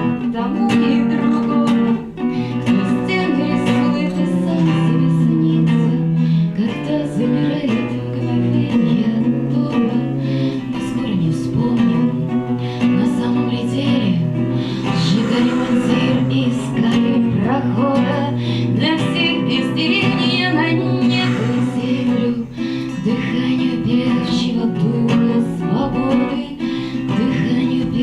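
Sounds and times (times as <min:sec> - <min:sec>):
strummed acoustic guitar: 0:00.0 - 0:28.0
slow sliding melody line: 0:02.6 - 0:25.7.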